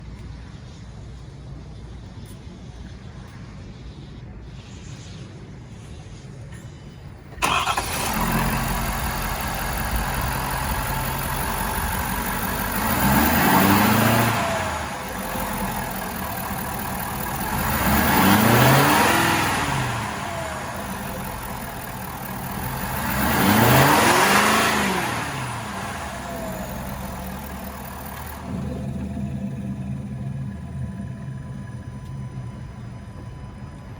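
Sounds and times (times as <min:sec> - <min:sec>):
pickup engine starting and idling: 0:07.2 - 0:33.9
engine revving: 0:07.4 - 0:33.6.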